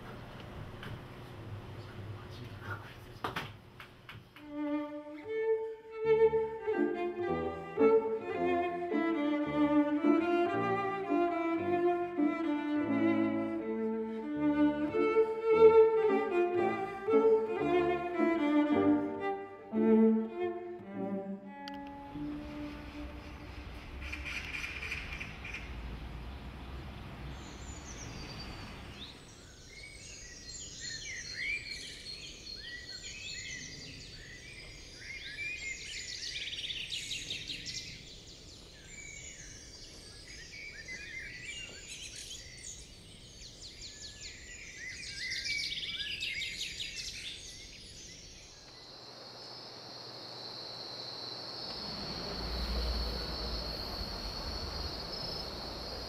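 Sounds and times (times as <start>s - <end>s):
low background rumble: 4.5s - 29.0s, 51.5s - 56.0s
small birds chirping chorus: 22.2s - 56.0s
high insect trill: 48.2s - 56.0s.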